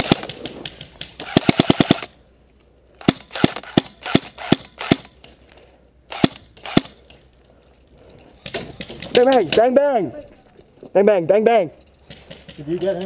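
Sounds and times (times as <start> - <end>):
airsoft gun firing: 0.0 - 2.1, 3.0 - 5.1, 6.1 - 7.0.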